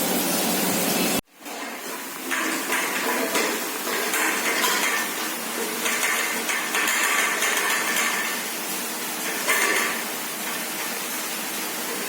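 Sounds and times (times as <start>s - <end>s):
metal utensils scraping a pot: 1.5s - 8.4s, 9.2s - 11.0s.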